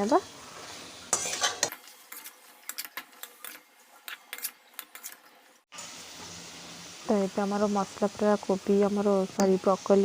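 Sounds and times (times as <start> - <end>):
faint sizzle: 0.0 - 10.0
spoon scraping a pan: 0.6 - 5.3.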